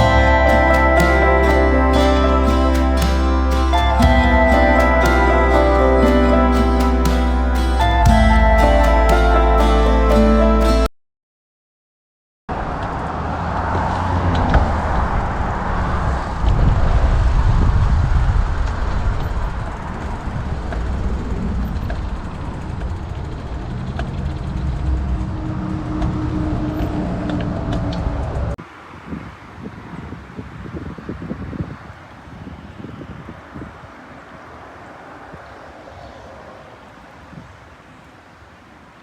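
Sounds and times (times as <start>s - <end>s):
wind buffeting microphone: 14.6s - 38.0s.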